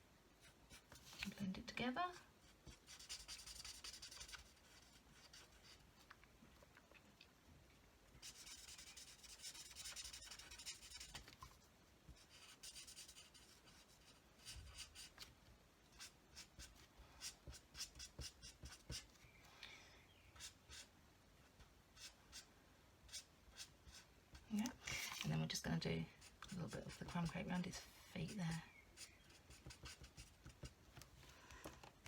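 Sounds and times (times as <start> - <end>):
marker scratching on card: 2.6 - 5.8, 8.2 - 11.2, 12.2 - 15.2, 16.0 - 19.1, 28.2 - 30.7.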